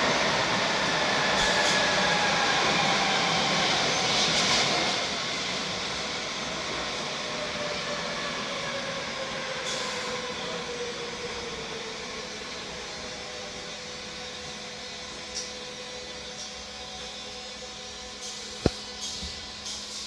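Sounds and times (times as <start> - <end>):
train rumbling through tunnel: 0.0 - 20.0.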